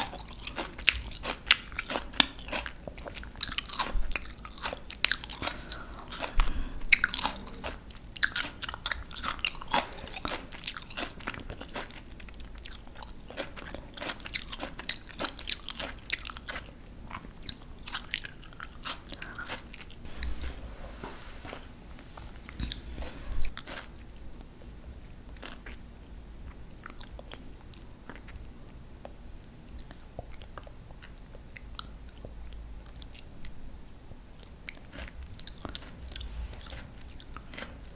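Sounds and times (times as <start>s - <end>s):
crunching raw vegetables: 0.0s - 20.7s, 21.4s - 24.5s, 33.9s - 37.9s.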